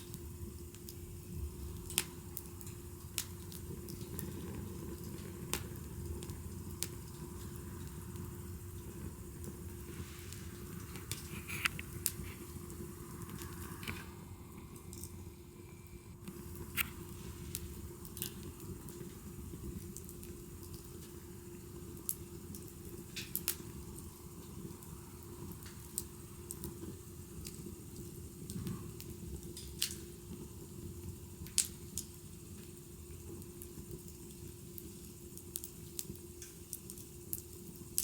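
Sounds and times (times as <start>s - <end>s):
wood fire crackling and popping: 0.0s - 38.0s.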